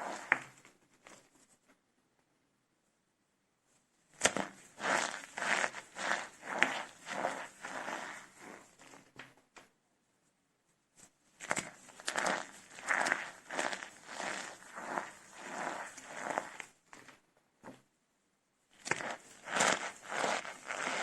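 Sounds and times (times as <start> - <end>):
soap cups crunching by hand: 4.2 - 8.9, 11.4 - 16.7, 18.8 - 21.0.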